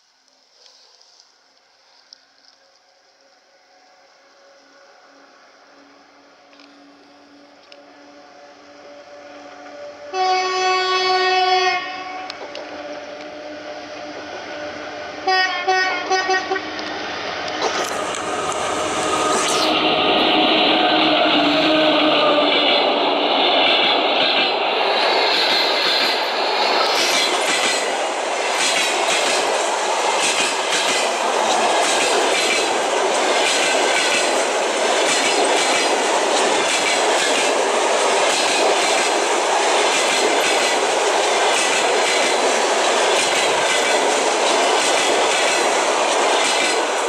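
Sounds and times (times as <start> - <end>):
train wheels rushing on rail: 2.4 - 47.0
wheels clacking over rail joints: 22.4 - 47.0.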